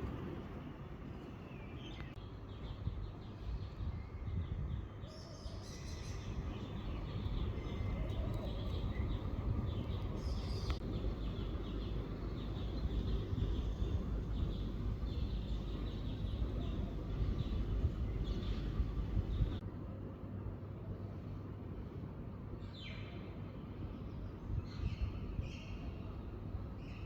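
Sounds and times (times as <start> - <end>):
steady low rumble: 0.0 - 4.9, 6.0 - 22.6
songbirds singing: 0.0 - 19.6, 22.6 - 27.0.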